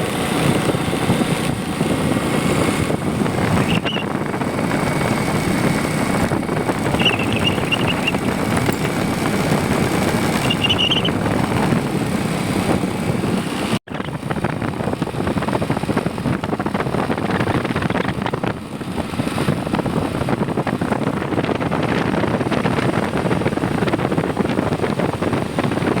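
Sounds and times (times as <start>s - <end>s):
vehicle rushing noise: 0.0s - 26.0s
short high chirps: 3.6s - 4.1s, 6.9s - 8.4s, 10.4s - 11.2s.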